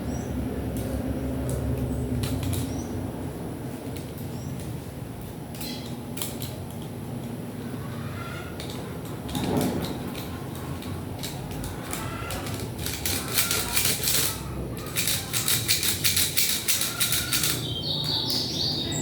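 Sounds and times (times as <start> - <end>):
plastic and metal parts clicking: 8.6 - 17.7.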